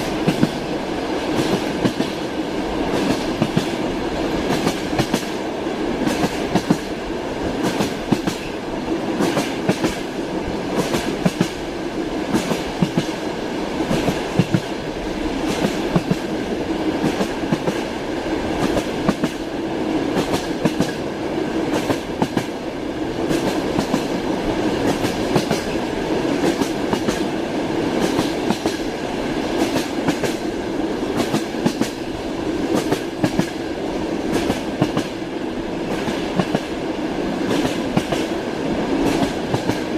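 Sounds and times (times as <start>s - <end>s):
train wheels clacking: 0.0s - 22.6s, 23.2s - 36.8s, 37.4s - 39.9s
rolling rumble of train: 0.0s - 39.9s.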